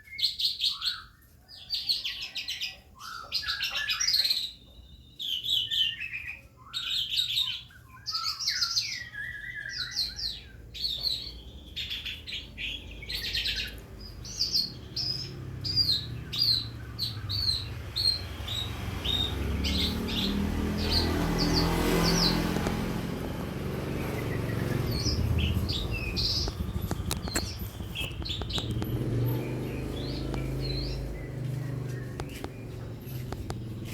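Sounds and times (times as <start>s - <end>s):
lark singing chirps and trills: 0.0s - 33.9s
low rumble: 18.3s - 33.9s.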